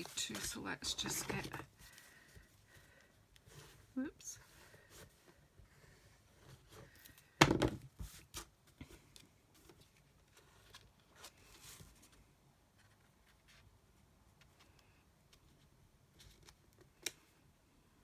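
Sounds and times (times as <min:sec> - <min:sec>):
paper rustling: 0:00.0 - 0:03.8
faint handling noises: 0:00.0 - 0:17.4
loud thump on desk: 0:07.4 - 0:07.8.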